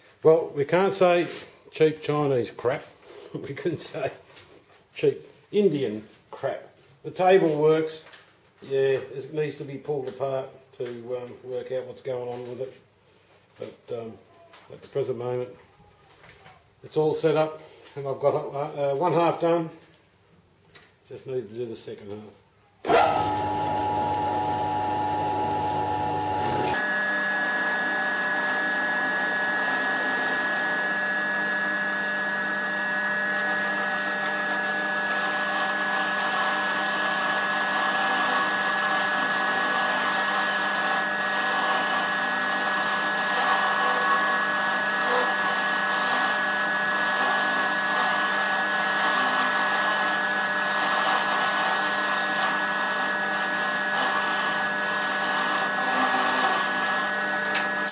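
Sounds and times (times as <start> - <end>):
end mill cutting metal: 22.9 - 57.9
milling machine motor whine: 22.9 - 57.9.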